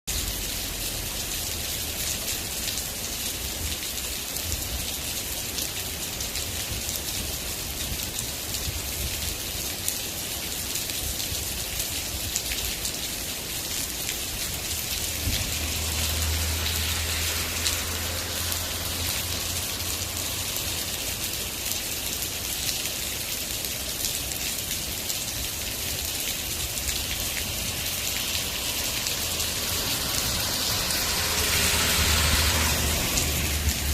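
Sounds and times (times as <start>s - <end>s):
rain pattering on surfaces: 0.1s - 33.9s
water drips: 13.6s - 23.0s, 25.3s - 33.9s.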